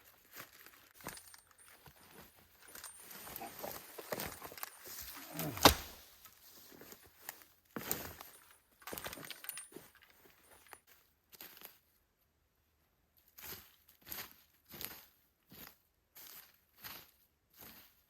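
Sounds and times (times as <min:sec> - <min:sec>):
scraping or crunching: 0:00.2 - 0:10.8.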